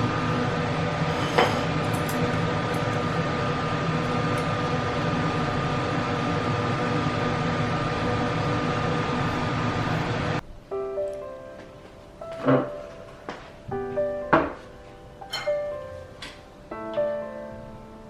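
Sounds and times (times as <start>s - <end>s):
machine running with whine: 0.0s - 10.4s.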